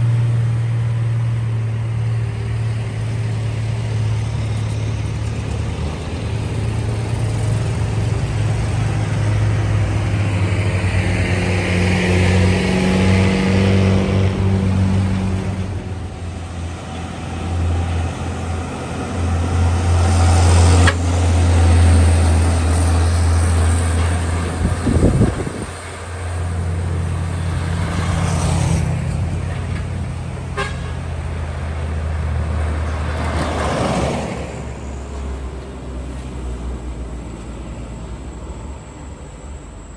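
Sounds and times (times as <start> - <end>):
diesel trucks passing: 0.0 - 39.9
truck horn: 20.7 - 21.2, 30.4 - 31.3.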